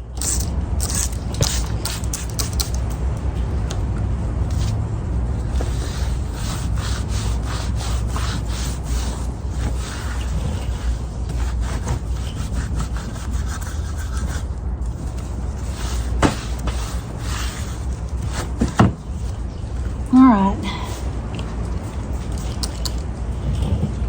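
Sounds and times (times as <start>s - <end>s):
steady low hum: 0.0s - 24.0s
rag rubbing wooden bench: 5.4s - 19.4s.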